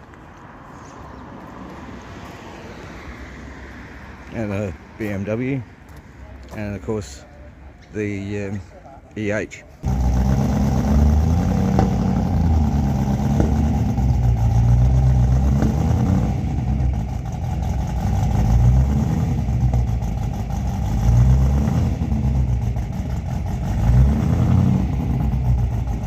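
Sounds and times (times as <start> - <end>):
car engine revving: 9.8 - 26.0.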